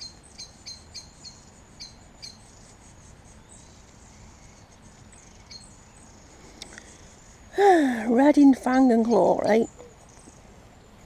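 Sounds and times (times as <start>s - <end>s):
songbird alarm calls: 0.0s - 7.5s.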